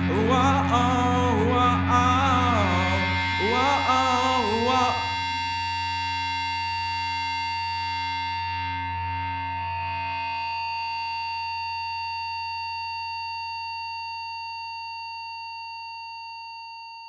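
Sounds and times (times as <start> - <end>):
person singing: 0.0 - 5.2
progressive rock song: 0.0 - 5.2
sustained ringing chord: 0.0 - 12.0.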